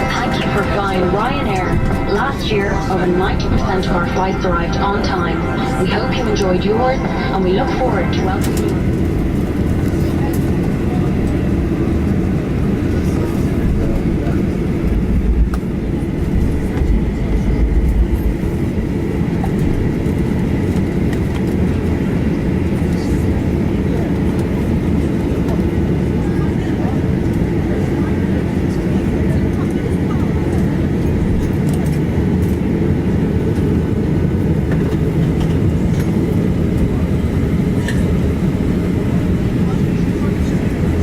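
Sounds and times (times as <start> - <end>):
faint steady whine: 0.0 - 10.0
aircraft cabin rumble: 0.0 - 41.0
jet engines idling: 0.0 - 41.0.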